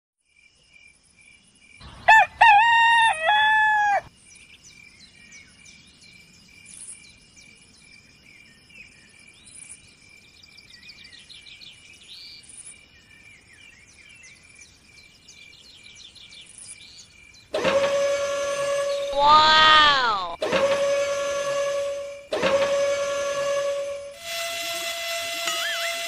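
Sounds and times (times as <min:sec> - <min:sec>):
rooster crowing: 0:02.0 - 0:04.1, 0:19.1 - 0:20.4.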